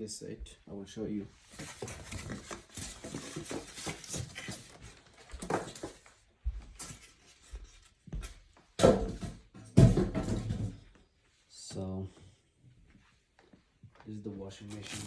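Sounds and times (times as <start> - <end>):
rustling: 14.6 - 15.0.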